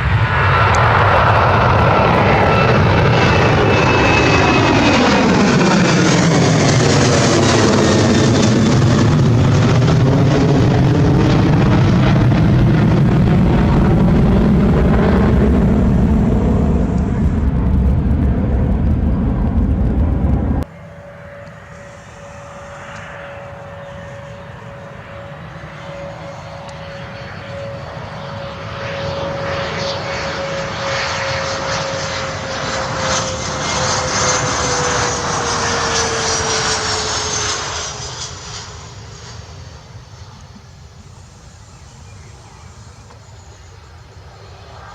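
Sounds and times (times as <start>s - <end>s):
aircraft passing with engine whine: 0.0s - 44.9s
loud aircraft engine noise: 0.0s - 44.9s.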